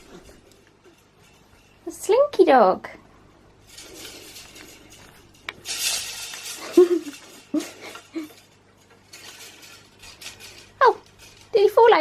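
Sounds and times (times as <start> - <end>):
plastic toy clattering: 3.7 - 12.0.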